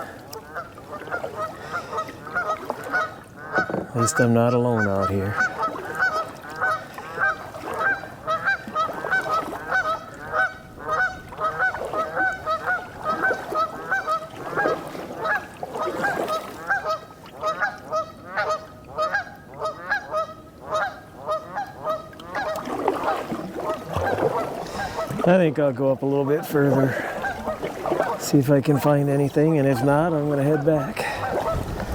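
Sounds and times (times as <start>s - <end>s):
geese honking: 0.0s - 25.3s, 26.2s - 31.7s.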